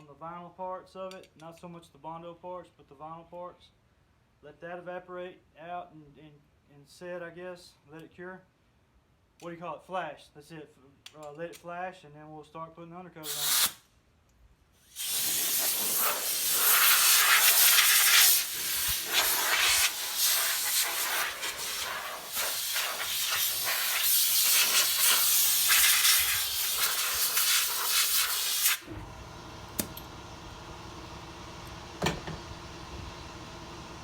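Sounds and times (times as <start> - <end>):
air blow gun hissing: 13.3 - 13.8, 14.8 - 29.0.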